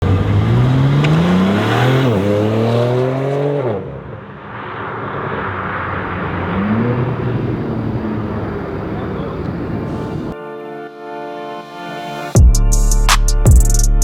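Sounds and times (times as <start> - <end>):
car engine accelerating hard: 0.0 - 10.4
rushing noise: 4.1 - 10.4.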